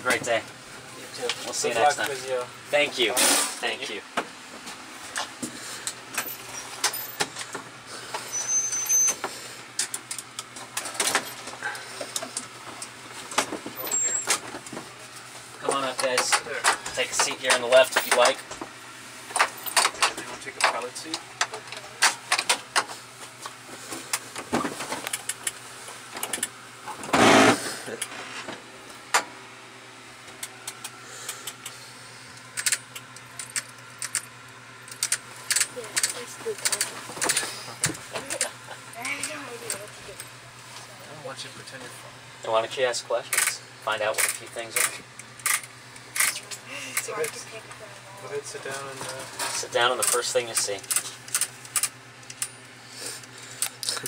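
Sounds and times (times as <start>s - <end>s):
steady low hum: 0.0s - 54.0s
thin high whistle: 8.3s - 9.2s
scattered clicks and knocks: 19.3s - 22.9s, 26.2s - 28.1s, 32.6s - 34.3s.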